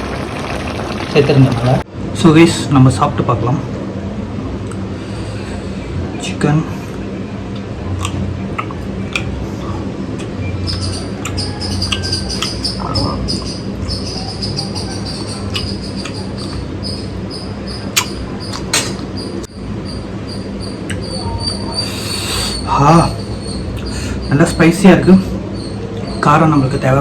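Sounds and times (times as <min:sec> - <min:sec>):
high-pitched insect trill: 0:19.2 - 0:26.9.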